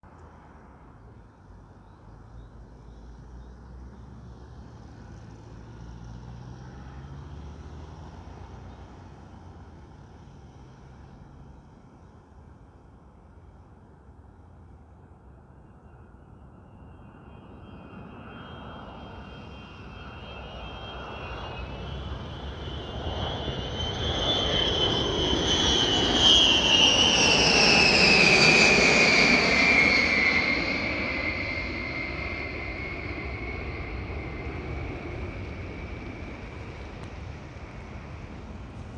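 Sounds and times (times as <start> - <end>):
aircraft flying past: 4.2 - 11.7, 16.9 - 38.9.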